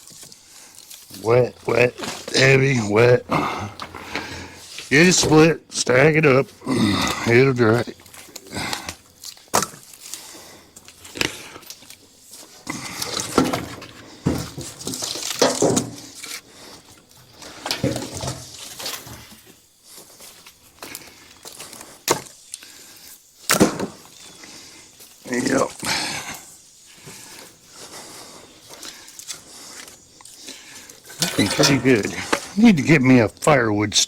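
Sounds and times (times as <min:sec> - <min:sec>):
wood scraping and rustling: 0:00.0 - 0:05.6, 0:06.4 - 0:33.4
firewood pieces knocking together: 0:12.7 - 0:16.4, 0:17.4 - 0:19.3, 0:23.5 - 0:24.2.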